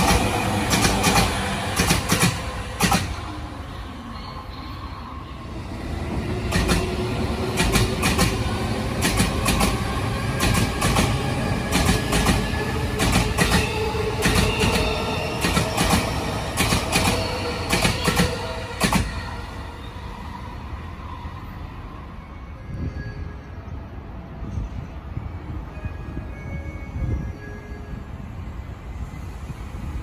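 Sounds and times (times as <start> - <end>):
electric train rumble and whine: 0.0 - 30.0
wheels clacking over rail joints: 6.5 - 19.1.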